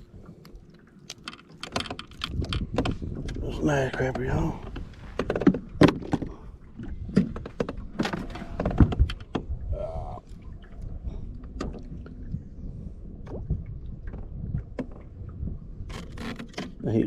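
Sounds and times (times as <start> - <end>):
wind rumble on microphone: 1.7 - 17.0
knocks against a boat: 1.8 - 6.4.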